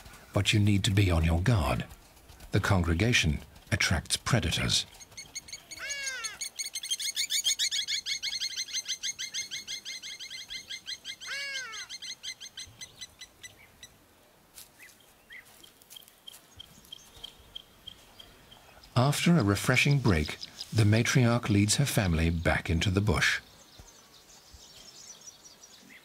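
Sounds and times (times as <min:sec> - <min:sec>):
birds chirping: 0:00.0 - 0:26.0
drooping bird call: 0:04.5 - 0:12.9.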